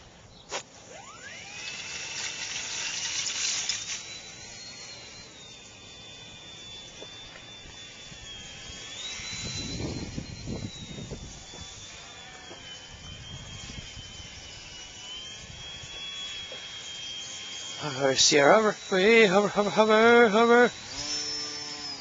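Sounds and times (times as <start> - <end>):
electric motor whining: 0.0 - 22.0
wind buffeting microphone: 8.2 - 11.8.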